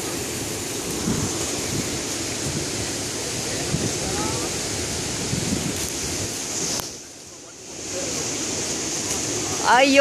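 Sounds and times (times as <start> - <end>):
wind on microphone: 0.0 - 7.0
river water rushing: 0.0 - 10.0.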